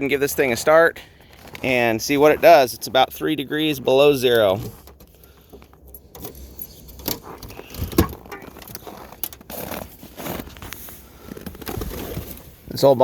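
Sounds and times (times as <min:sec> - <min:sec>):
keys jangling: 0:04.4 - 0:09.0.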